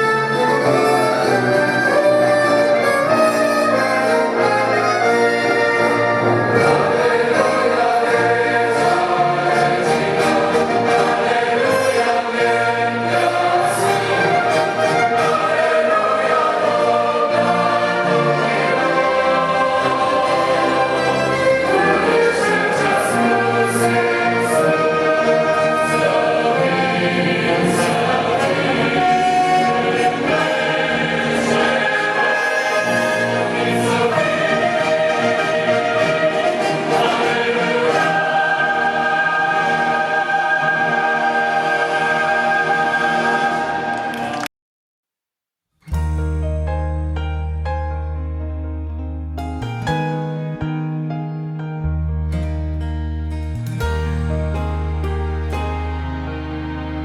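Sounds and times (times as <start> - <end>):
choir singing: 0.0 - 44.5
orchestra and brass playing: 0.0 - 44.5.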